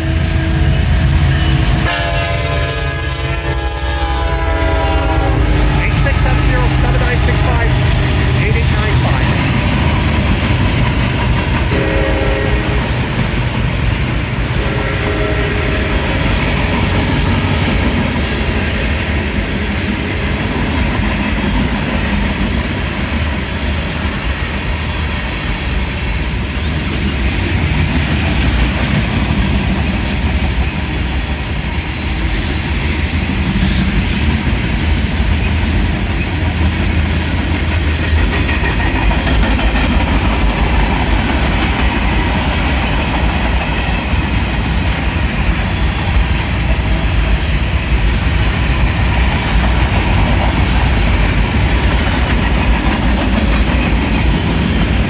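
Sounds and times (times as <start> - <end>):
locomotive horn: 0.0 - 9.8, 11.6 - 13.2, 14.5 - 16.5
freight train wheels clattering: 4.9 - 14.6, 15.9 - 55.0.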